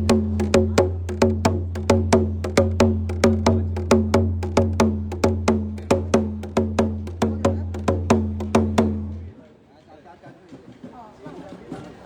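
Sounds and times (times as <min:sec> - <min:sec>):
drum struck in fast beat: 0:00.0 - 0:09.3.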